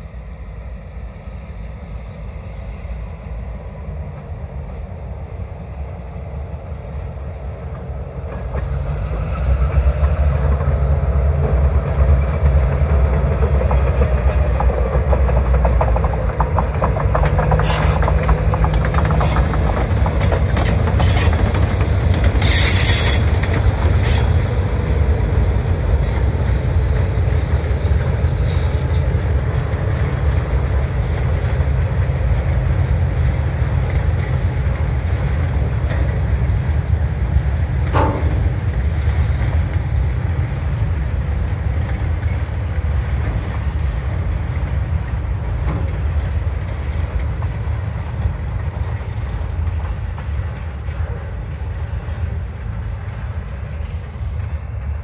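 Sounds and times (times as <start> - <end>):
diesel locomotive rumble: 0.0 - 55.0
wheels clicking over rail joints: 7.8 - 49.0
high wheel squeals: 17.5 - 18.2, 20.6 - 21.6, 22.4 - 23.4, 24.0 - 24.5.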